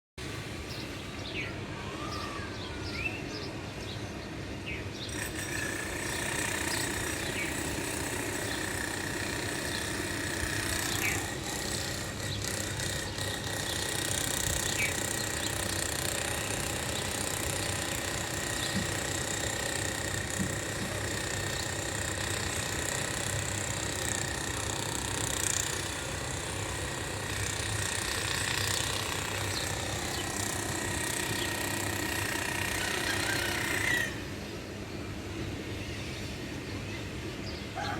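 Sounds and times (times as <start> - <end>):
machinery noise: 5.1 - 34.5.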